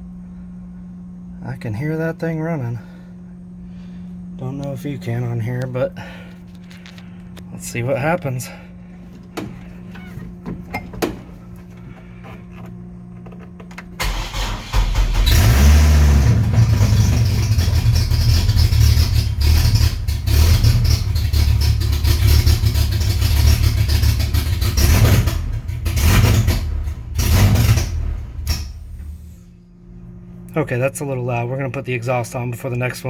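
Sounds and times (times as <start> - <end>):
electric fuel pump humming: 0.0 - 33.0
car engine starting and running: 9.0 - 29.5.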